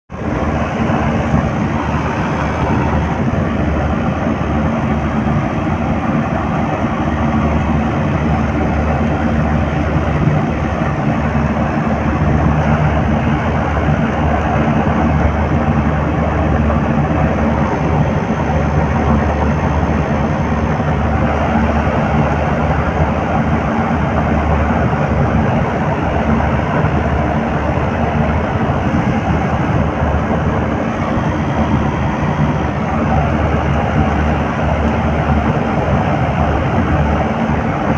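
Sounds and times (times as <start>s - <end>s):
compressor low hum: 0.1s - 37.9s
rough mechanical rush: 0.1s - 37.9s.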